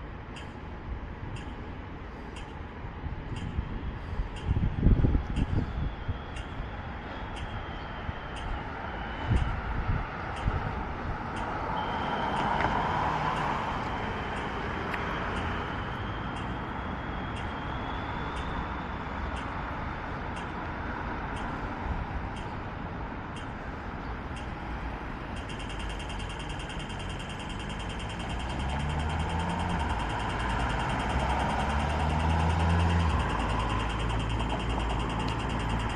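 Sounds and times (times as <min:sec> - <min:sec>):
road traffic noise: 0:00.0 - 0:35.9
faint ticking: 0:25.3 - 0:35.9.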